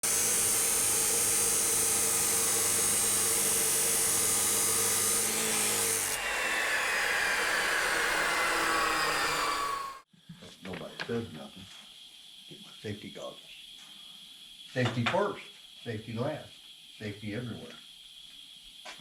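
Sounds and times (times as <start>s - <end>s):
power tool whirring: 0.0s - 10.0s.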